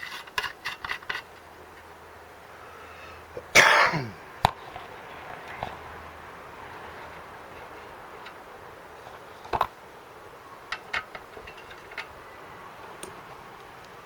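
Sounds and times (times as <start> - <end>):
metal tools clanking: 10.7 - 12.3.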